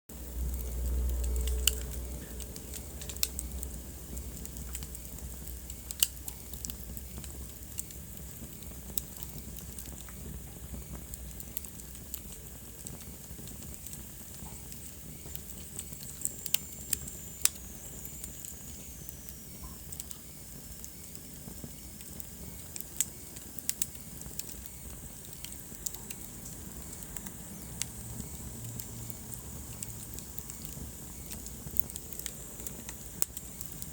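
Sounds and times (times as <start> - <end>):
low rumble: 0.1 - 5.8
wood fire crackling: 0.1 - 33.9.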